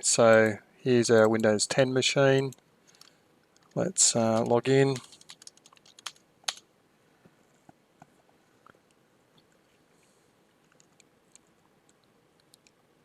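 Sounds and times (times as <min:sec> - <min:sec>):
faint ticks and clicks: 0:00.0 - 0:06.6, 0:07.2 - 0:12.9
keyboard keystrokes: 0:03.6 - 0:06.6.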